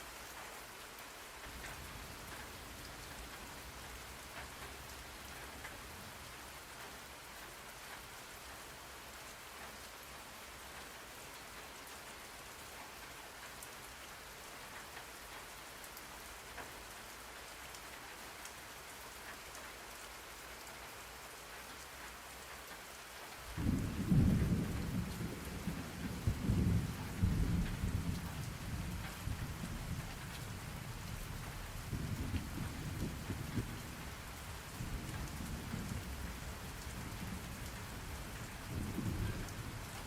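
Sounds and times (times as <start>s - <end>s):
rain falling: 0.0s - 40.0s
low roll of thunder: 23.5s - 40.0s.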